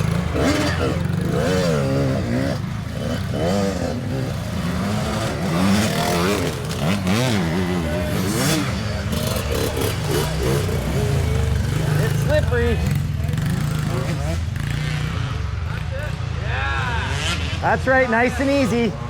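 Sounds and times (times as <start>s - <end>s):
clatter and scraping: 0.0s - 15.0s
dirt bike engines revving: 0.0s - 19.0s.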